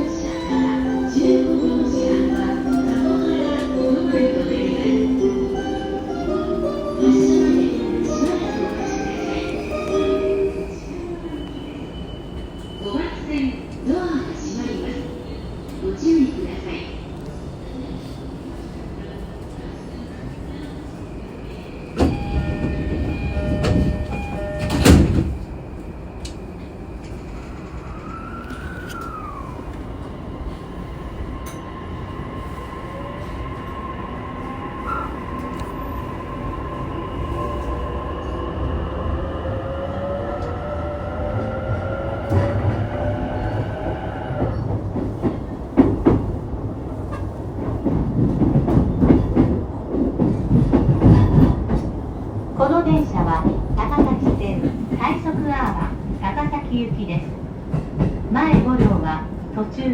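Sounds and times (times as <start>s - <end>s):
train doors shutting: 0.0s - 14.6s, 21.2s - 59.5s
door chime: 22.0s - 25.3s.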